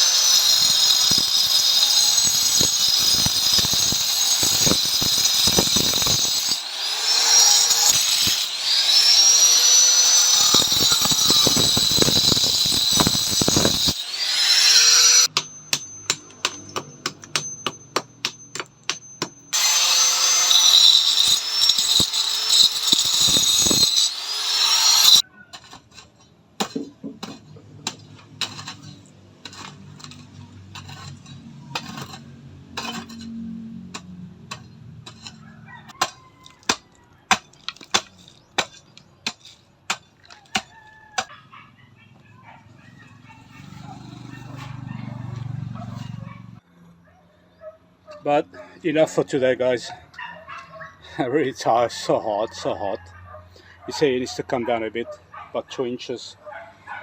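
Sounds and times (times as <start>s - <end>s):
power tool whining: 0.0s - 16.2s, 19.5s - 25.2s.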